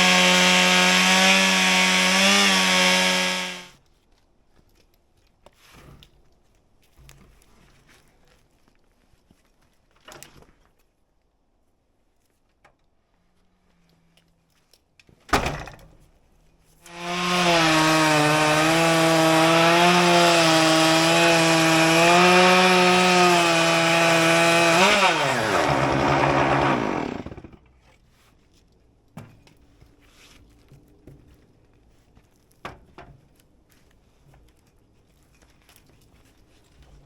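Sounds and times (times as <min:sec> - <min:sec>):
chainsaw cutting through log: 0:00.0 - 0:03.7, 0:16.8 - 0:27.6.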